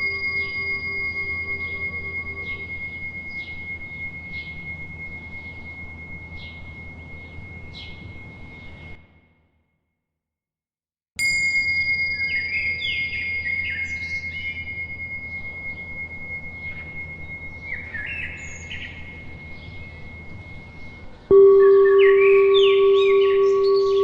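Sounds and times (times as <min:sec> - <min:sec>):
birds chirping: 0:00.0 - 0:03.7, 0:20.7 - 0:24.0
deep bell strike: 0:00.0 - 0:04.8, 0:21.3 - 0:24.0
small bell ringing: 0:00.0 - 0:09.0, 0:11.2 - 0:24.0.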